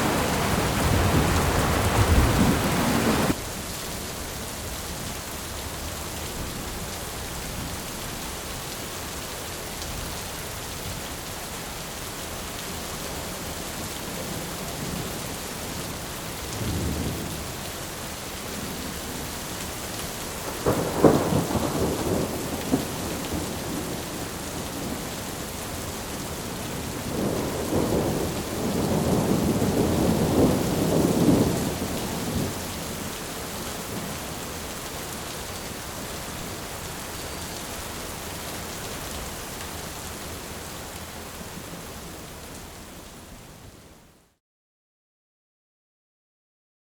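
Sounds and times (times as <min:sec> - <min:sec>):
rain hissing: 0:00.0 - 0:03.4, 0:19.5 - 0:43.3
thunder rumbling: 0:00.0 - 0:03.4, 0:20.4 - 0:25.2, 0:26.6 - 0:36.8.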